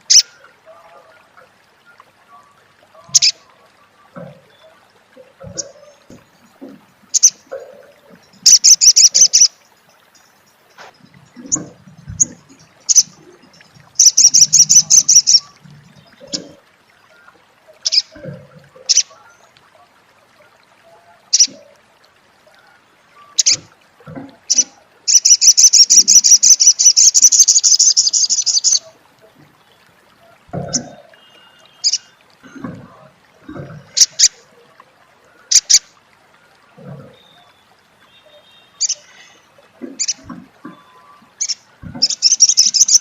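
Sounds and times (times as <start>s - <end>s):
bird chattering call: 8.4s - 9.5s, 14.0s - 15.5s, 24.5s - 28.8s, 41.4s - 43.0s.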